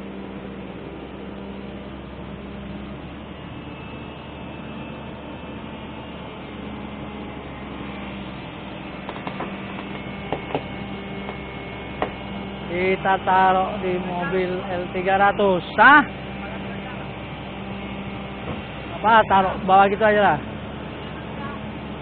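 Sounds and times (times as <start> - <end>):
steady machine hum: 0.0 - 22.0
sharp metallic knocks and clicks: 9.0 - 11.4.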